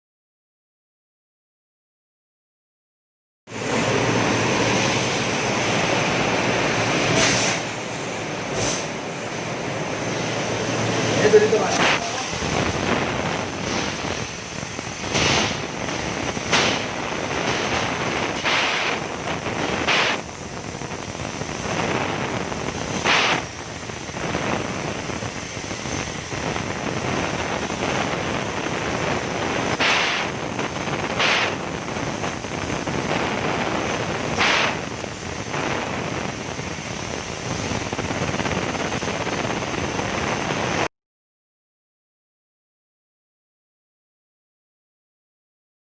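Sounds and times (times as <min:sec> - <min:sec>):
cutting machine hiss and whine: 0:03.5 - 0:40.9
sharp short bursts: 0:29.7 - 0:30.4, 0:31.1 - 0:31.7.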